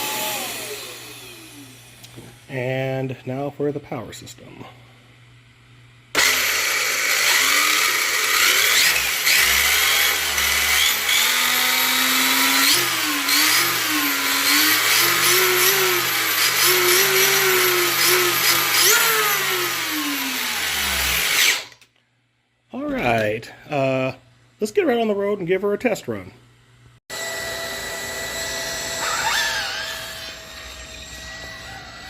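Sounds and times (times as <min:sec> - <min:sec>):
rc car motor whine: 0:06.2 - 0:21.8, 0:27.2 - 0:32.0.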